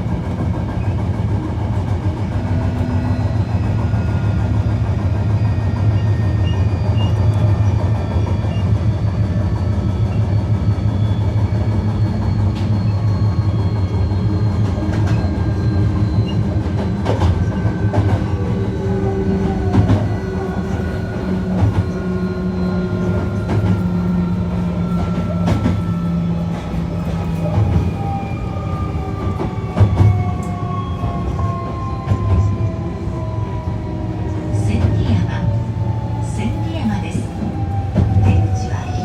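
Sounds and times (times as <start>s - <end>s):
electric train inverter whine: 0.0s - 39.0s
train rumble: 0.0s - 39.0s
rail-joint clicks: 11.2s - 28.2s, 28.9s - 32.8s.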